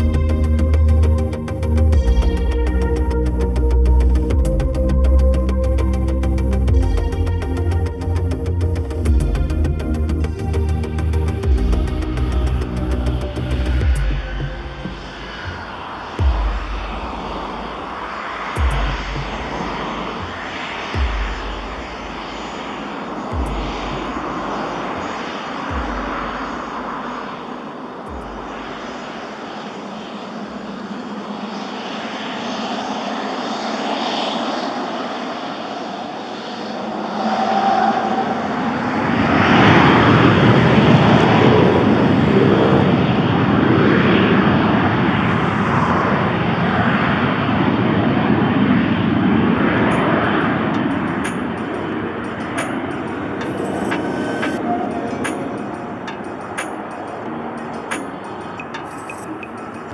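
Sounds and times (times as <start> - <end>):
airplane engine passing: 0.0 - 59.9
low thumps: 13.8 - 22.4.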